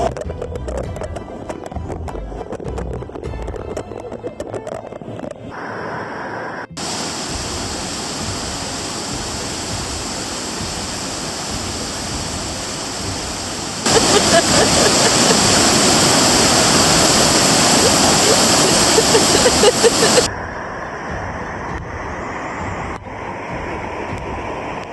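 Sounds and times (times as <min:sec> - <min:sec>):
waterfall and rapids rushing: 0:05.5 - 0:24.9.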